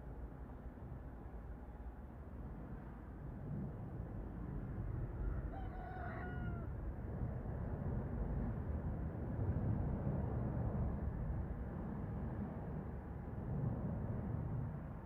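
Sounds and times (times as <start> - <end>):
rooster crowing: 5.2 - 6.7.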